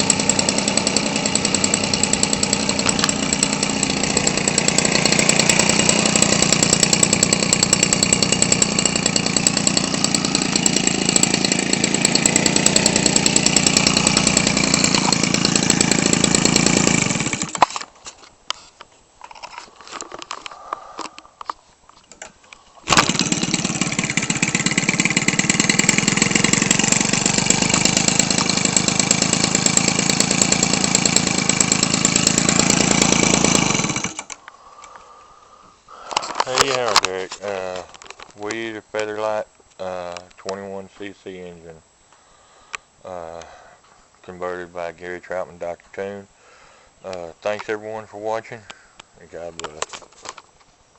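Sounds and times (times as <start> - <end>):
two-stroke engine running: 0.0 - 17.7, 22.9 - 34.4.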